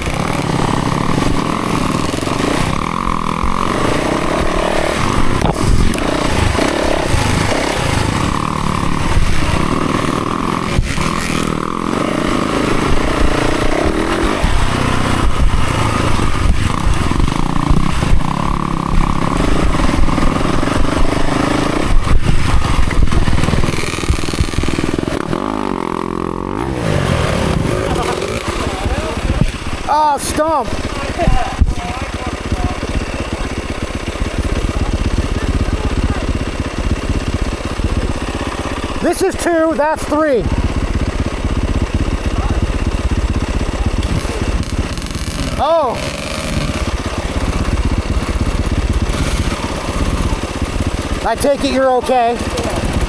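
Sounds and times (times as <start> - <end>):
rush of noise: 0.0 - 40.0
dirt bike engine revving: 0.0 - 53.0.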